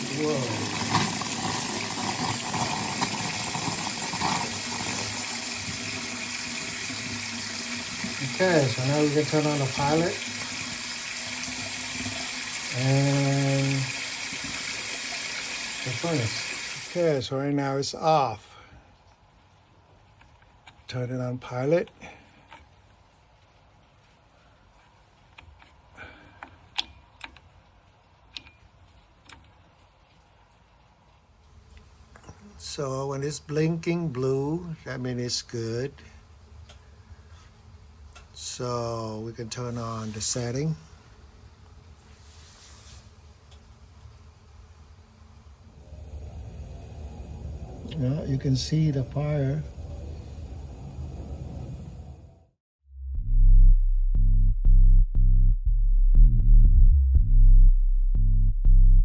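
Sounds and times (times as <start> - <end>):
water and air spurting from tap: 0.0 - 17.2.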